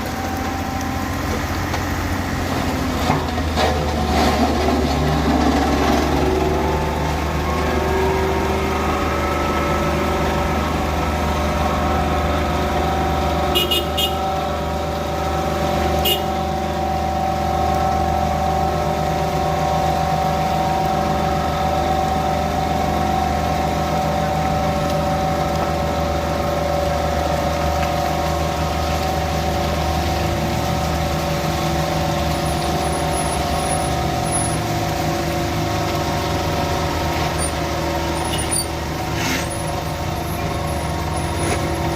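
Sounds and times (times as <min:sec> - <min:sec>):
heavy diesel engine running: 0:00.0 - 0:41.9.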